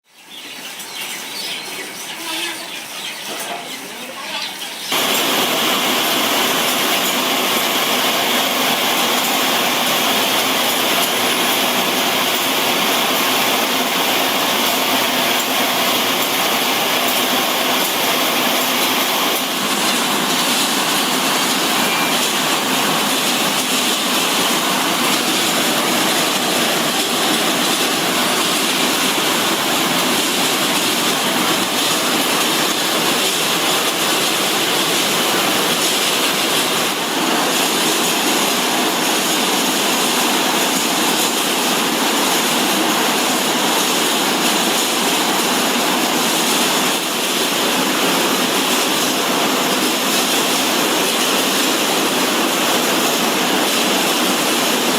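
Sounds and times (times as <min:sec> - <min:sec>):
loud machinery noise: 0:04.8 - 0:54.9.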